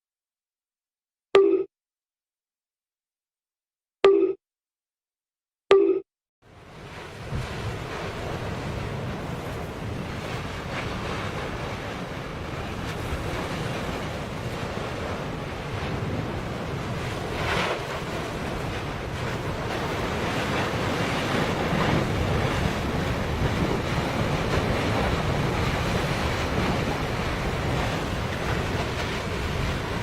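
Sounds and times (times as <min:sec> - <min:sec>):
stormy wind: 0:06.5 - 0:30.0
rushing water: 0:06.6 - 0:30.0
wind buffeting the microphone: 0:06.6 - 0:30.0.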